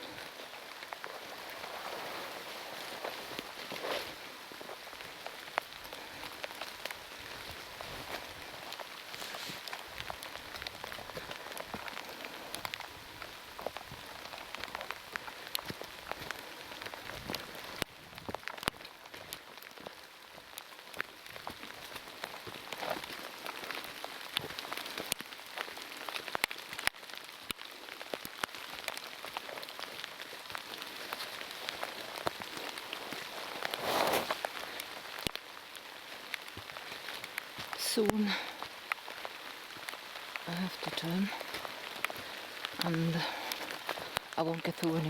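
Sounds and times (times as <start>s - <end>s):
heavy rain falling: 0.0s - 45.0s.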